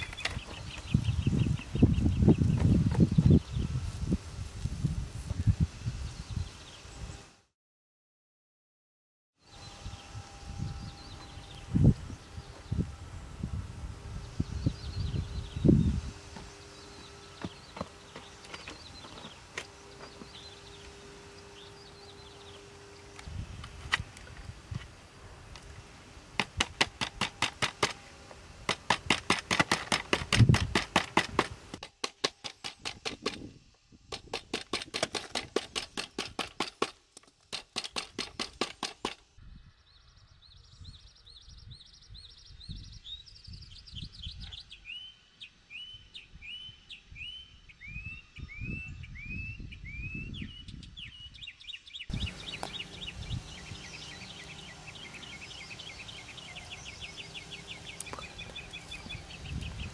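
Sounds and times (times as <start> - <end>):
bird chirping: 0.0 - 3.8, 14.2 - 24.5, 37.8 - 59.9.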